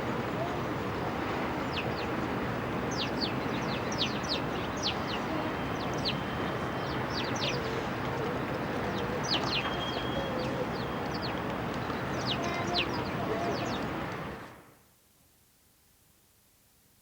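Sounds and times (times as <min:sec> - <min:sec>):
small birds chirping: 0:02.9 - 0:07.7, 0:08.5 - 0:14.0.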